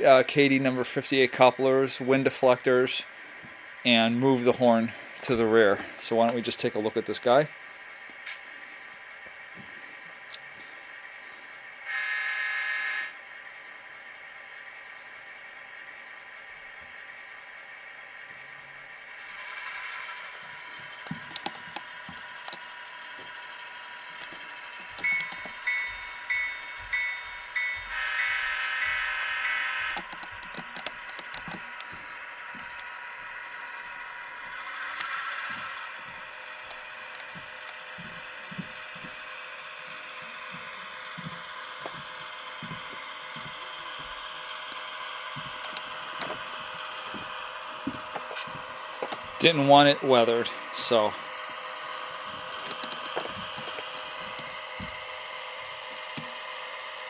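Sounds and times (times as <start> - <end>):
diesel locomotive idling on speaker: 0.0 - 57.0
horn-like tone: 11.9 - 13.2, 25.0 - 30.0
locomotive bell ringing: 11.9 - 13.2, 24.4 - 30.0
clicks: 24.2 - 27.8, 29.9 - 31.9, 45.5 - 46.4, 52.6 - 54.6.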